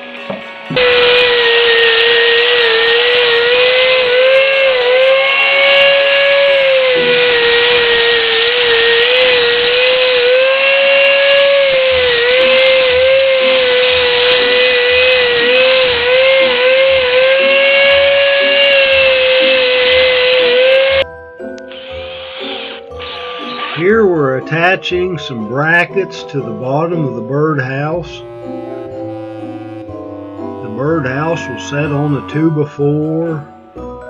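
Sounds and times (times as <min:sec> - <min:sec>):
power saw cutting wood: 0:00.0 - 0:21.0, 0:21.6 - 0:34.0.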